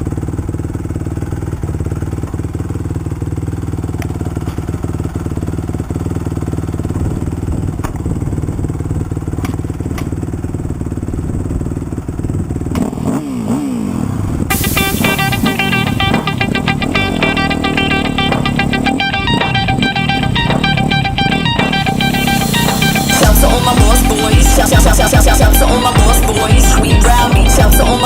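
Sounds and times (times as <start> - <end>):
motocross bike engine revving: 12.2 - 28.0
music: 14.5 - 28.0.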